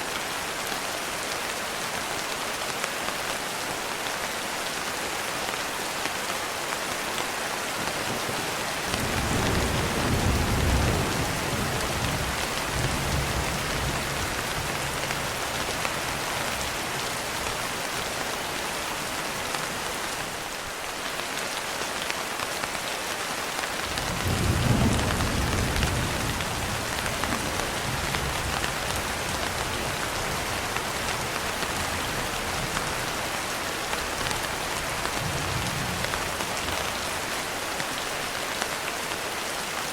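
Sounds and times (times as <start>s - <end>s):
steady rain: 0.0s - 39.9s
thunder rumbling: 8.9s - 15.4s, 24.0s - 32.8s.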